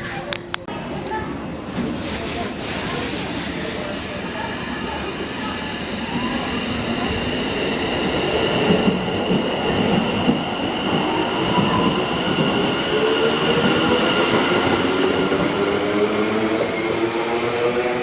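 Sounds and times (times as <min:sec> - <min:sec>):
train high whine: 0:03.7 - 0:18.0.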